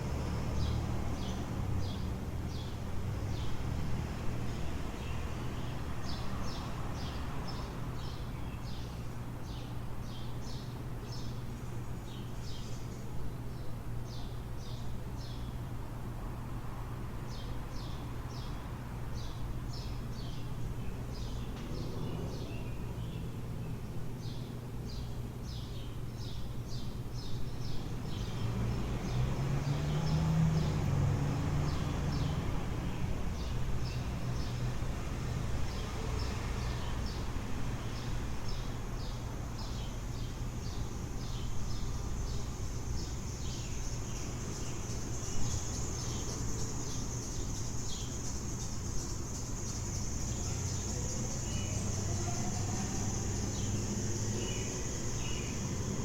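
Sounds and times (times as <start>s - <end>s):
low city hum: 0.0s - 56.0s
small birds chirping: 0.4s - 16.2s, 17.2s - 56.0s
motor vehicle passing: 21.6s - 23.2s, 27.9s - 37.6s, 50.3s - 56.0s.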